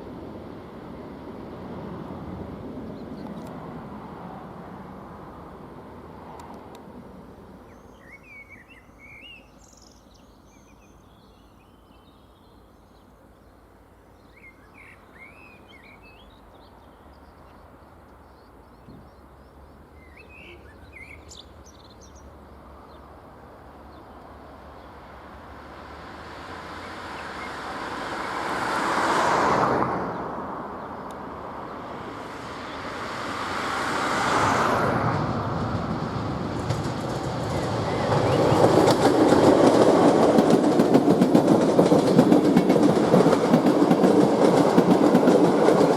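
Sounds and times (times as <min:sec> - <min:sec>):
outdoor background noise: 0:00.0 - 0:45.9
small birds chirping: 0:07.7 - 0:23.2
vehicle passing: 0:25.6 - 0:45.9.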